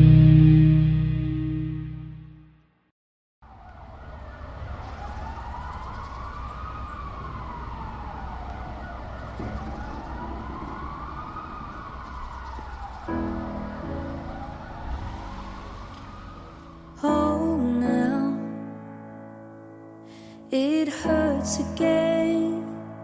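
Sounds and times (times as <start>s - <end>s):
siren-like wailing tone: 3.4s - 17.8s.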